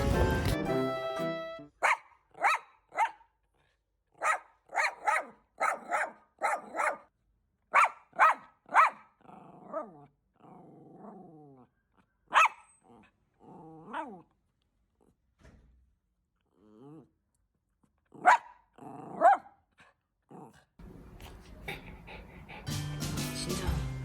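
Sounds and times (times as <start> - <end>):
small dog barking: 1.8 - 3.3, 4.2 - 7.1, 7.7 - 10.0, 12.3 - 12.7, 13.8 - 14.2, 18.2 - 19.6
dog growling: 9.2 - 11.7, 12.8 - 14.4, 16.4 - 17.2, 17.8 - 22.9.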